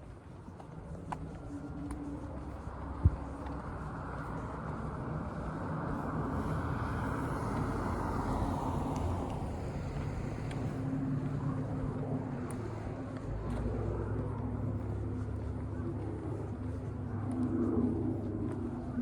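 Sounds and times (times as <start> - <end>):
low engine hum: 0.0 - 19.0
car driving past: 6.2 - 11.2.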